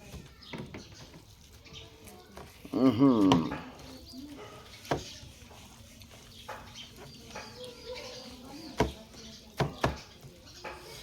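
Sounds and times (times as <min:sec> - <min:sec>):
chewing: 0:01.0 - 0:08.3.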